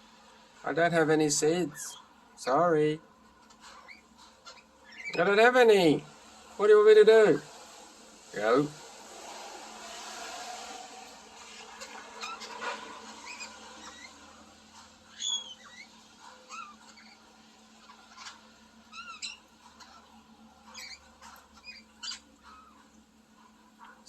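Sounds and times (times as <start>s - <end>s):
parrot squeaky chirps and whistles: 3.6s - 5.4s, 11.5s - 14.4s, 15.1s - 22.9s.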